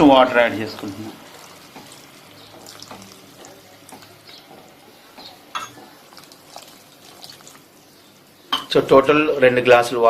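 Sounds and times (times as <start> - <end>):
stirring curry in a pan: 0.0 - 8.5
utensil clink: 5.5 - 5.9.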